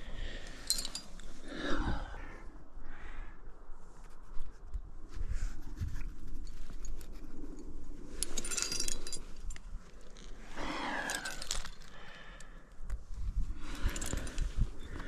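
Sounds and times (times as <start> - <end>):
climbing gear jangling: 0.4 - 1.3, 8.2 - 12.2, 13.6 - 15.0.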